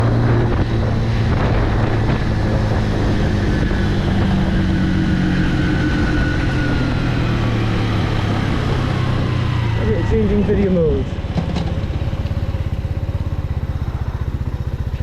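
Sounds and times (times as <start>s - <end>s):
wind noise on microphone: 0.0s - 10.9s
motorcycle engine running: 0.0s - 15.0s.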